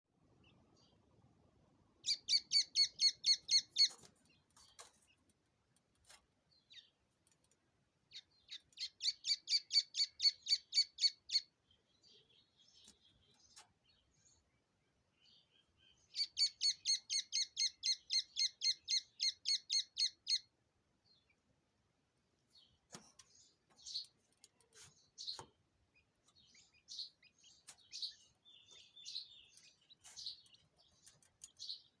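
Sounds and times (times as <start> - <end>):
bird chirping: 0.3 - 1.3, 1.9 - 5.3, 6.5 - 21.5, 22.4 - 32.0
small bird trilling: 2.1 - 4.0, 16.2 - 20.5.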